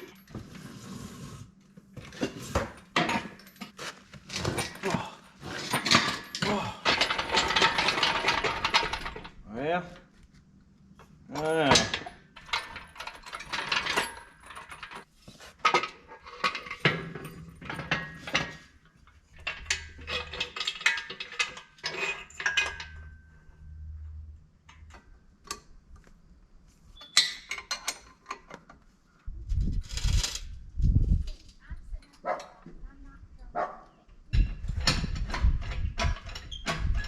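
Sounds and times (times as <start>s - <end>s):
metal equipment clanking and scraping: 0.0s - 9.4s, 11.3s - 24.0s, 34.4s - 37.0s.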